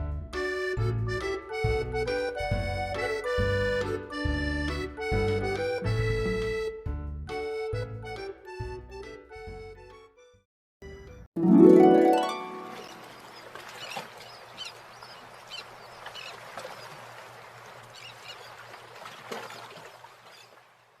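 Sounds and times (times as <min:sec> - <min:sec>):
harp glissando: 0:11.4 - 0:13.1.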